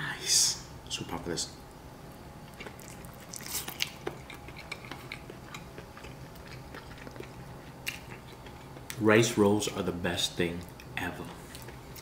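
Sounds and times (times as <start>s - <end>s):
man chewing soft food: 2.4s - 9.0s, 10.6s - 12.0s.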